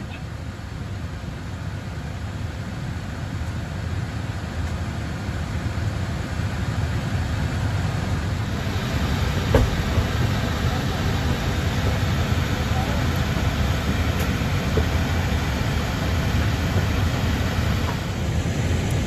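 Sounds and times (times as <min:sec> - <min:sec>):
low rumble with hiss: 0:00.0 - 0:19.0.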